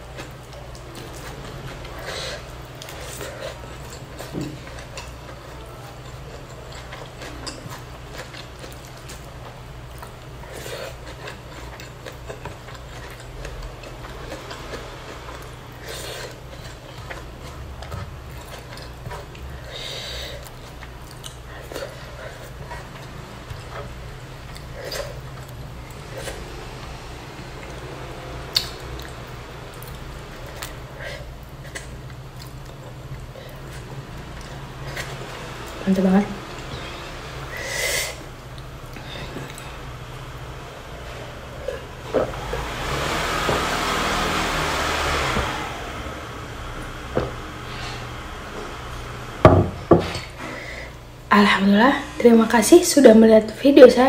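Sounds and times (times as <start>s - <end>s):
soft chewing: 0.0s - 35.8s, 38.2s - 42.7s
steady low hum: 0.0s - 42.9s.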